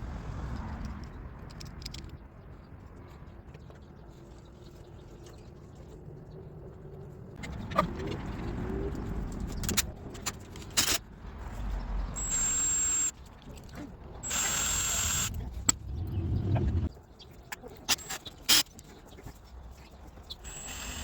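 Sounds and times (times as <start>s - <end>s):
power tool whining: 12.2s - 13.1s, 14.2s - 15.4s, 20.4s - 21.0s.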